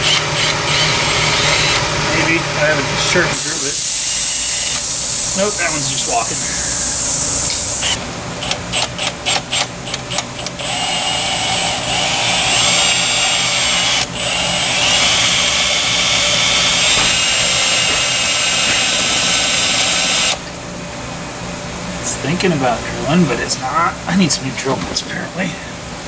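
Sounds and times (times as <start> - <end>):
drill whining: 0.0 - 20.5.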